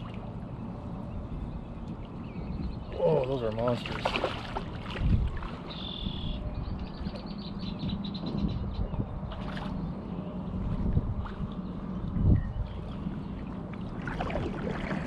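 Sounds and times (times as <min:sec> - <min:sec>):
low rumble of wind and water: 0:00.0 - 0:15.0
songbird singing with trill: 0:00.4 - 0:03.4, 0:05.6 - 0:10.6, 0:11.6 - 0:13.4
splash: 0:03.2 - 0:05.8, 0:09.3 - 0:09.8, 0:13.7 - 0:15.0.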